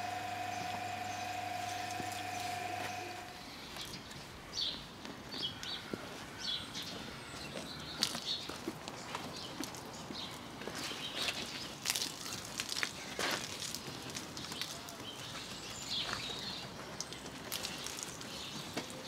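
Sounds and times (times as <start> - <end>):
mechanical hum with held tones: 0.0 - 3.6
birds chirping: 0.0 - 11.8.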